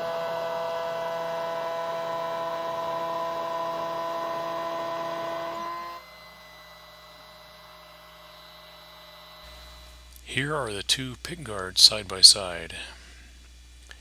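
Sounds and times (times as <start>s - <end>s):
router spindle whining: 0.0s - 10.4s
quiet steady hum: 0.0s - 14.0s.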